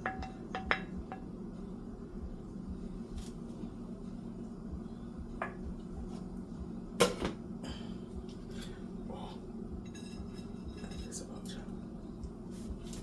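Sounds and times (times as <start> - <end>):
dishware knocking and clicking: 0.0 - 1.2, 7.0 - 7.4
steady low hum: 0.0 - 13.0.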